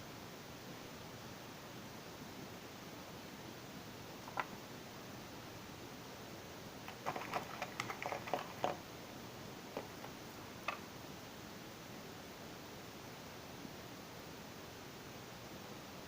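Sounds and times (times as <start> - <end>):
steady background hiss: 0.0 - 16.0
handling clicks and rustles: 4.2 - 4.6, 6.8 - 8.8, 9.7 - 10.9.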